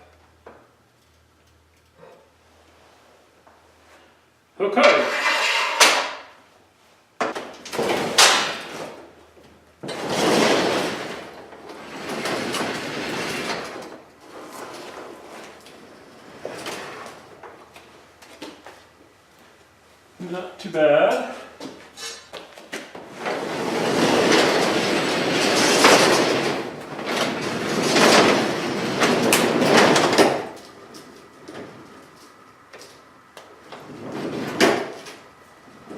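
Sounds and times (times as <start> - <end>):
garage door rolling and rattling: 4.8 - 6.5, 7.2 - 19.3, 21.1 - 35.9.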